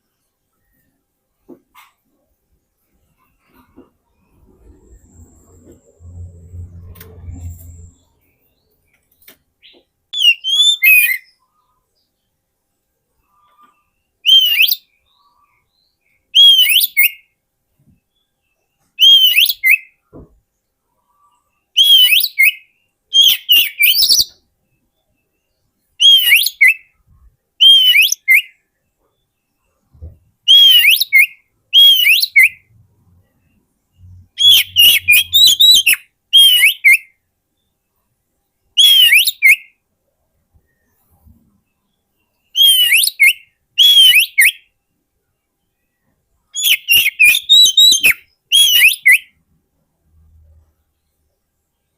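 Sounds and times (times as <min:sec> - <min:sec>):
bird singing whistled phrases: 0:10.2 - 0:11.4, 0:14.2 - 0:14.9, 0:16.4 - 0:17.2, 0:19.0 - 0:20.0, 0:21.8 - 0:24.4, 0:26.0 - 0:26.9, 0:27.6 - 0:28.6, 0:30.5 - 0:32.7, 0:34.4 - 0:37.1, 0:38.8 - 0:39.8, 0:42.5 - 0:44.7, 0:46.6 - 0:49.3.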